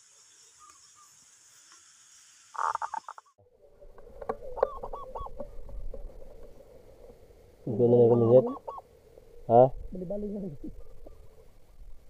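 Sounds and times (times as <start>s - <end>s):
birds calling: 0.0s - 1.8s, 2.4s - 3.4s, 4.3s - 5.7s, 7.8s - 9.0s, 10.0s - 11.9s.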